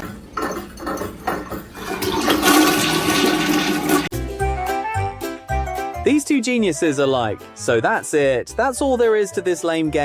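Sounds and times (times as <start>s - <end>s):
rushing water: 1.8s - 4.1s
music: 3.6s - 10.0s.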